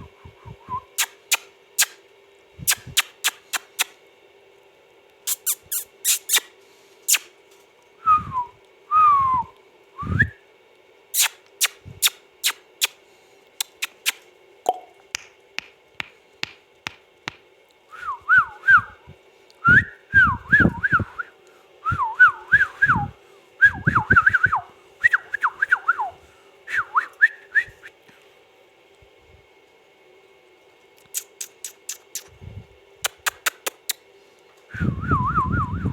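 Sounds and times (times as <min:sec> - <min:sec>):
parakeet clicks: 0:02.7 - 0:03.9, 0:13.6 - 0:17.4, 0:33.0 - 0:34.0.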